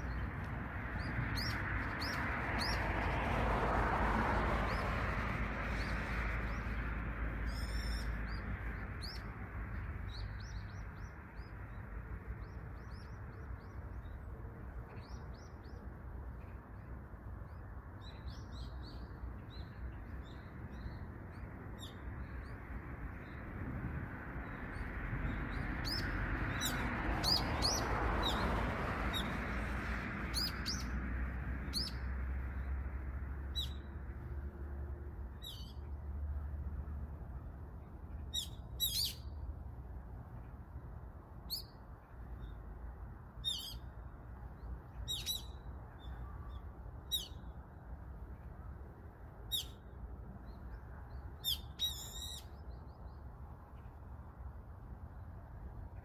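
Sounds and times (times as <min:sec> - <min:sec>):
small birds chirping: 0:00.0 - 0:03.1, 0:07.4 - 0:22.6, 0:43.4 - 0:47.5, 0:49.5 - 0:54.0
low rush of background noise: 0:00.0 - 0:56.0.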